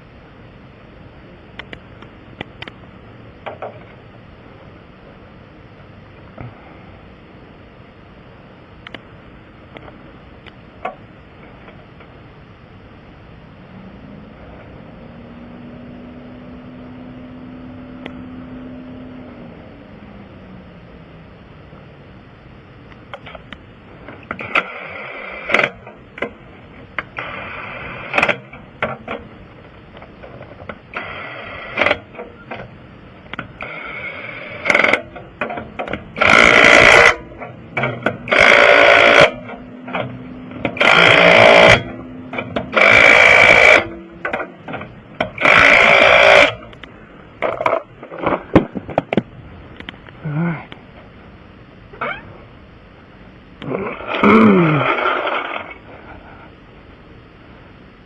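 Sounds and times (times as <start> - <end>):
impact wrench bursts: 30.9 - 32.7, 33.6 - 46.7.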